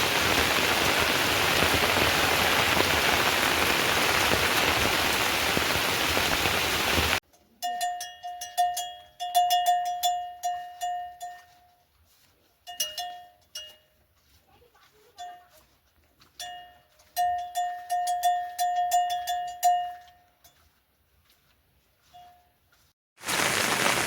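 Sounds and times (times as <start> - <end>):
small metal bell ringing: 7.4 - 11.8, 12.6 - 14.0, 16.4 - 20.6.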